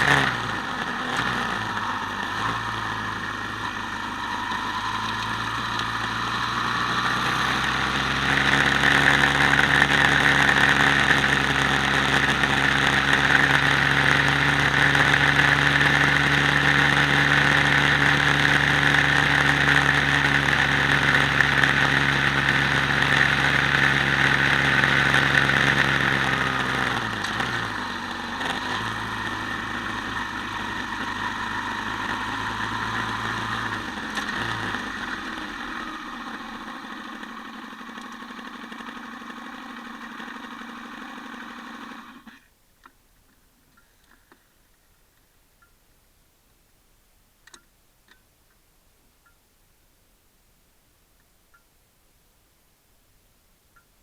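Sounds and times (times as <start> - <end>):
quad bike engine running: 0.0 - 42.5.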